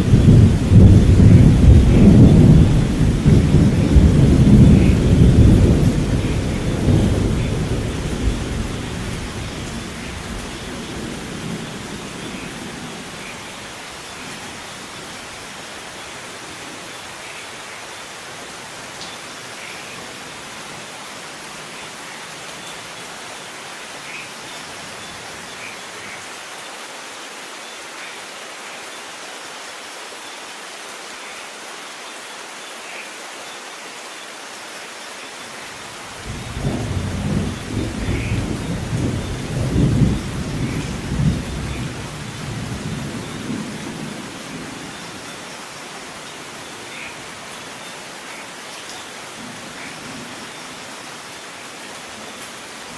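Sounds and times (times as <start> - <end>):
thunder rumbling: 0.0 - 13.2, 36.2 - 45.0
steady rain falling: 0.0 - 52.9.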